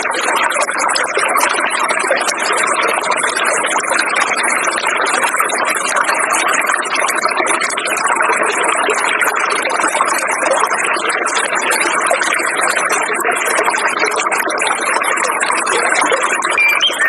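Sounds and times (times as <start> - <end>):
high-pitched nature chatter: 16.5 - 17.0.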